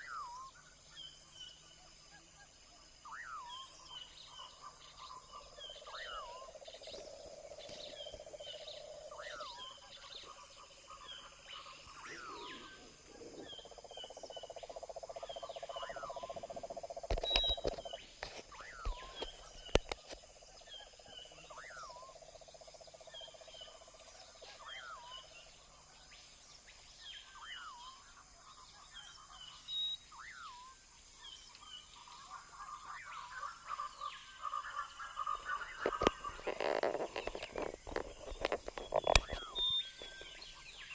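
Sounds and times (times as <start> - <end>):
birds calling: 3.3 - 22.0, 31.3 - 40.9.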